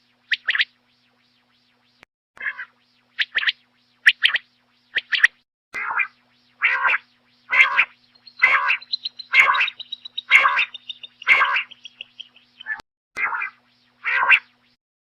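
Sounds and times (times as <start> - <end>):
quail calling: 5.0 - 14.5.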